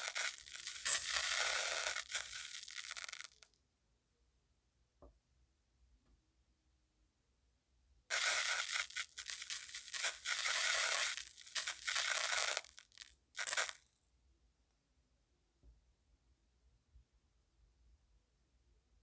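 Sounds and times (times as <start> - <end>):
sand scraping: 8.1 - 12.7.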